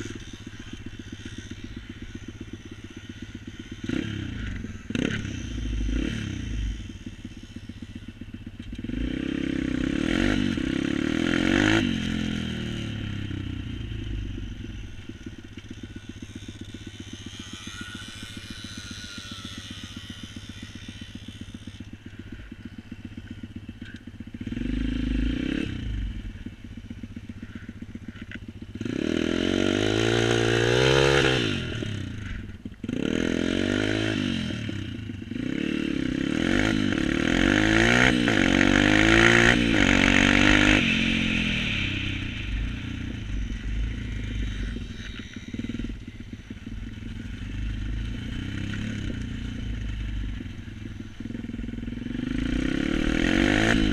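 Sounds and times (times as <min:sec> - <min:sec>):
vehicle engine revving: 0:27.4 - 0:53.9.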